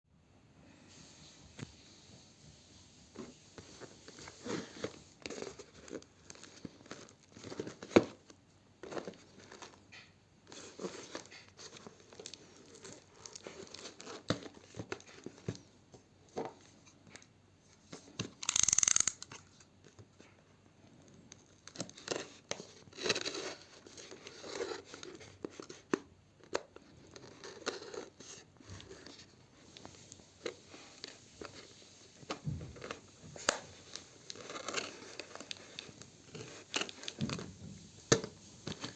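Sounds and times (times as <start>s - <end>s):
packaging rustling and crinkling: 1.6s - 38.9s.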